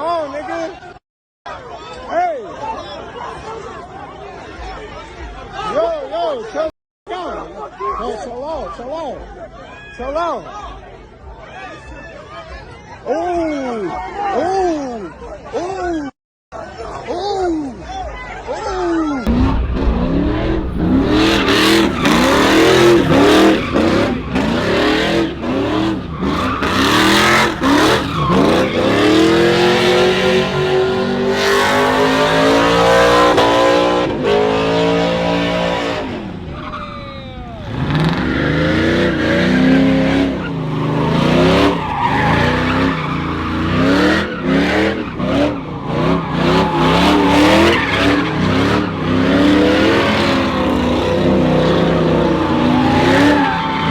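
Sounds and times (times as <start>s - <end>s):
tires skidding and squealing: 19.3s - 53.9s
truck engine revving: 19.3s - 53.9s.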